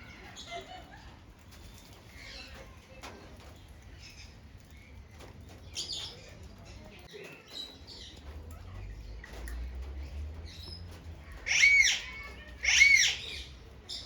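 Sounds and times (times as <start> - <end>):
parrots chirping: 10.4 - 14.0.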